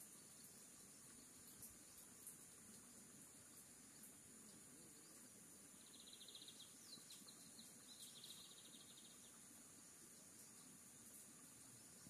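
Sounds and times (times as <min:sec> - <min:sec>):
songbird trilling: 0:05.8 - 0:09.4.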